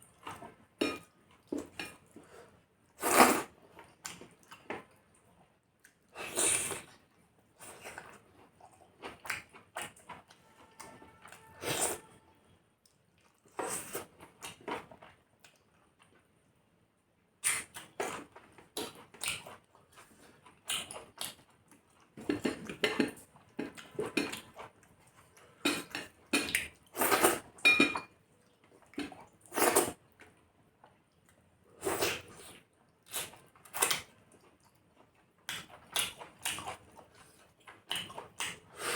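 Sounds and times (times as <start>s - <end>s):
dishes clinking and scraping: 0.8s - 1.1s, 27.6s - 28.1s.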